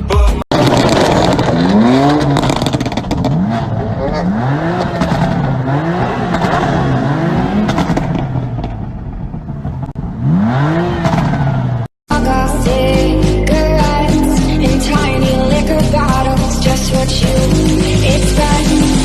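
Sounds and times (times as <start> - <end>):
music: 0.0 - 0.4, 12.1 - 19.0
car engine revving hard: 0.5 - 11.9.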